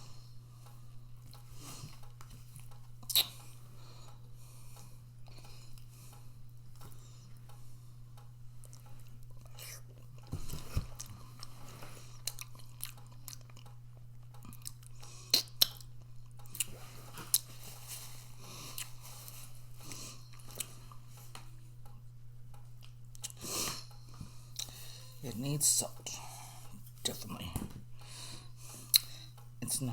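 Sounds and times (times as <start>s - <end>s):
person chewing food: 0.0s - 7.6s, 8.2s - 22.0s, 22.6s - 25.2s, 28.0s - 29.5s
steady low hum: 0.0s - 29.9s
wet mouth clicks and smacks: 3.0s - 3.5s, 14.4s - 16.7s, 28.9s - 29.1s.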